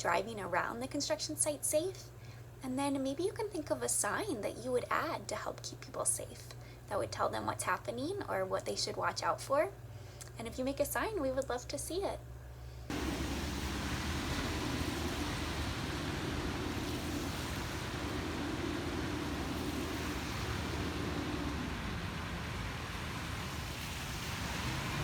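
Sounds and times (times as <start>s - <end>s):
noisy outdoor rush: 12.9s - 25.0s
vehicle engine droning: 12.9s - 25.0s.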